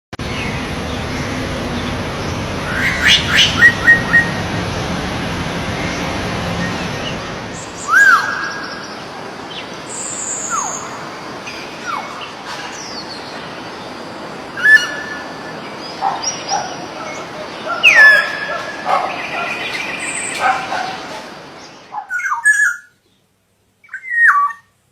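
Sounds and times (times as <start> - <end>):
songbirds chirping: 0.2 - 24.7
steady background hiss: 0.2 - 24.9.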